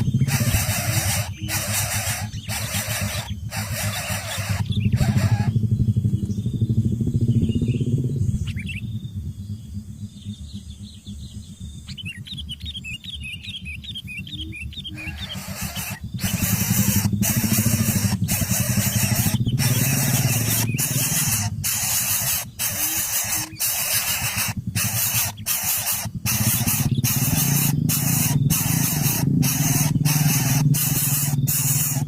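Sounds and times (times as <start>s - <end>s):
nestling birds hissing: 0.0s - 5.6s, 14.9s - 32.0s
high cheeps of nestlings: 0.0s - 6.6s, 10.2s - 32.0s.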